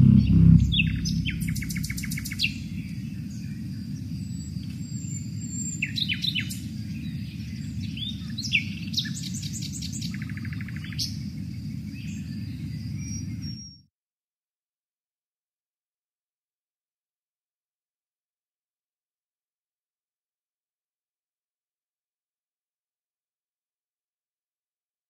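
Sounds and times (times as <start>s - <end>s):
steady low rumble: 0.0s - 3.8s
birds chirping and trilling: 0.0s - 13.7s.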